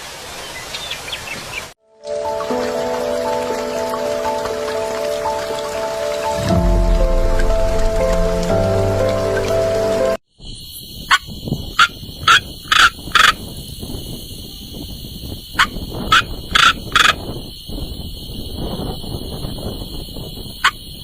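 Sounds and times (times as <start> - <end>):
brief music: 2.0 - 10.2.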